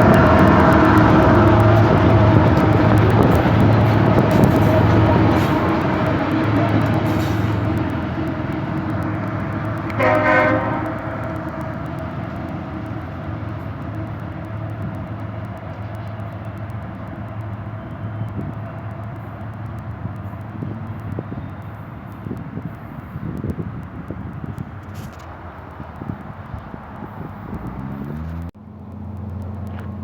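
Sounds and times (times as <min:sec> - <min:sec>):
train horn blast: 0:00.0 - 0:12.3
diesel locomotive engine drone: 0:00.0 - 0:30.0.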